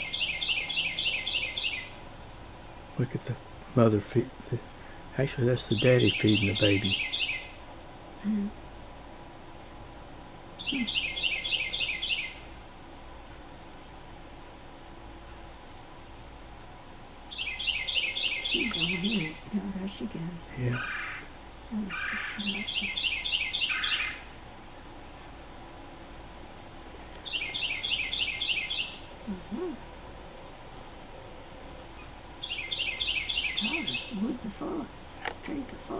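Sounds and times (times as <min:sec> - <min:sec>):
small birds chirping: 0:00.0 - 0:35.9
bird calling repeated bright notes: 0:17.3 - 0:24.3, 0:32.4 - 0:35.4.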